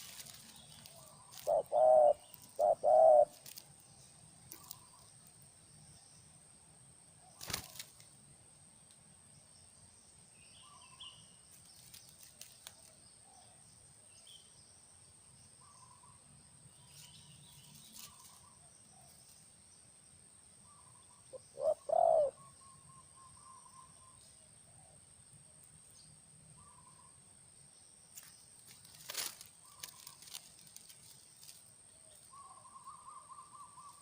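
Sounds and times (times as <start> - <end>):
dove cooing: 0.0 - 3.6, 20.8 - 22.8
small birds chirping: 0.0 - 8.2, 8.8 - 34.0.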